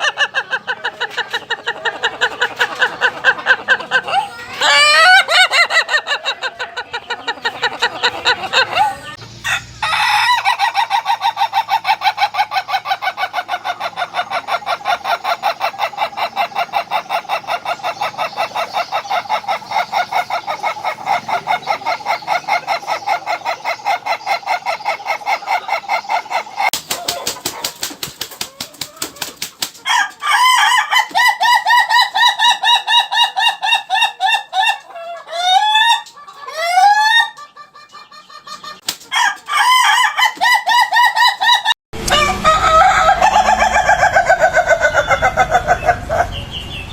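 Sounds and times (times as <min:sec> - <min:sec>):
roosters crowing in stuttering notes: 0:04.0 - 0:06.8, 0:07.9 - 0:37.4, 0:39.1 - 0:46.4
rapid clicking noise: 0:26.7 - 0:29.9.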